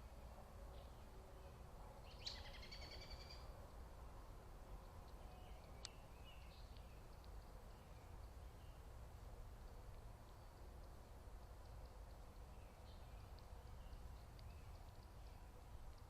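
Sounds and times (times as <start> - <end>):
faint bird chirps: 0.7 - 3.5, 5.1 - 8.9, 12.3 - 15.6.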